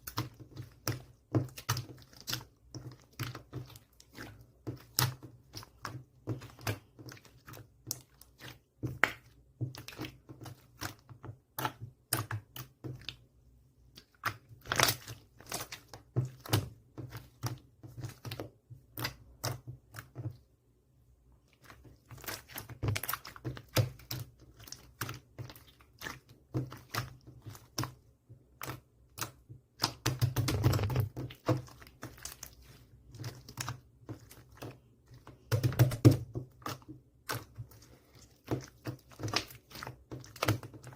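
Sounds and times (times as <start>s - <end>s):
slime squished by hand: 13.9s - 20.2s.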